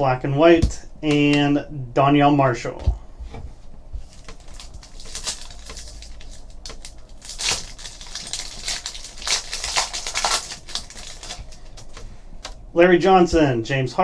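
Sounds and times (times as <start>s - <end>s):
wrapper crinkling: 4.0s - 12.1s
cards being handled: 4.0s - 12.6s.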